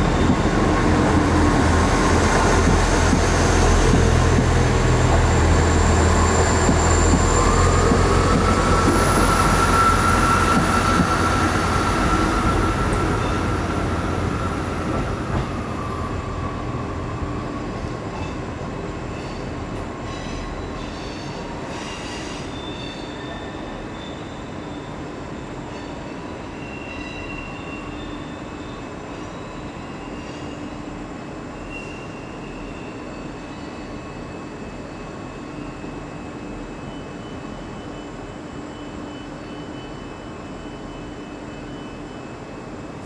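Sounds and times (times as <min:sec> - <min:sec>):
train moving through station: 0:00.0 - 0:43.0
high wheel squeals: 0:05.0 - 0:14.8.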